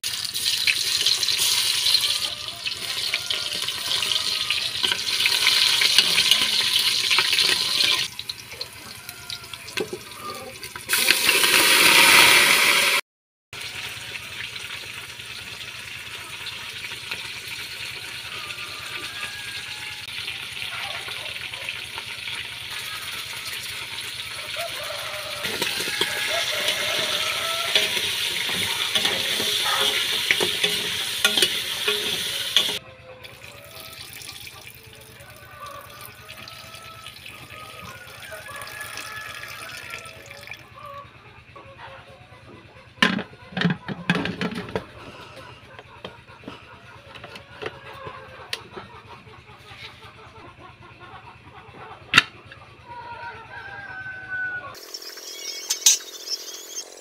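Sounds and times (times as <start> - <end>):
food sizzling in oil: 0.0 - 9.4, 10.8 - 13.0, 21.4 - 32.8
ladle stirring meat: 0.3 - 11.3, 21.0 - 32.8.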